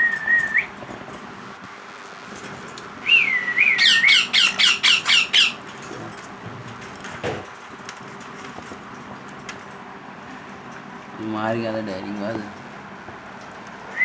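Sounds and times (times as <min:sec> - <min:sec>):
parrot chick calling: 0:03.0 - 0:05.6.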